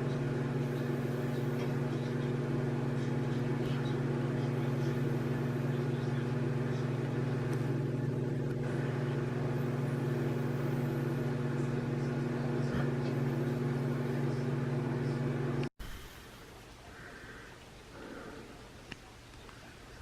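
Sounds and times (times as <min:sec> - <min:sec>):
low mechanical drone: 0:00.0 - 0:15.7.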